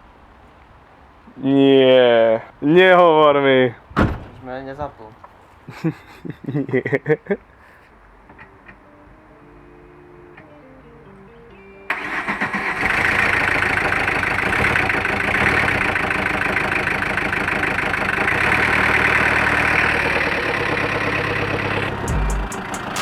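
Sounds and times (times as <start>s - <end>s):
car starter cranking: 11.9s - 23.0s
car engine running: 12.7s - 23.0s.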